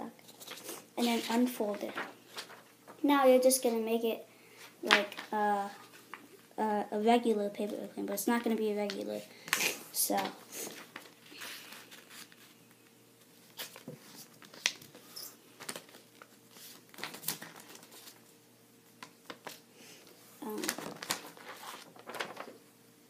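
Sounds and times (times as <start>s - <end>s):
paper rustling and crinkling: 0.2s - 3.0s, 4.8s - 6.3s, 8.8s - 18.3s, 19.0s - 22.6s.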